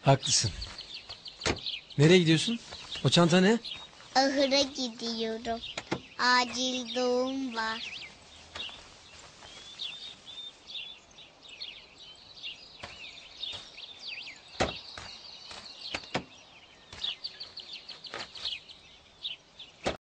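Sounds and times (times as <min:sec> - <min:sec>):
small birds chirping: 0:00.0 - 0:20.0
sharp knocks: 0:01.4 - 0:01.7, 0:14.6 - 0:15.1.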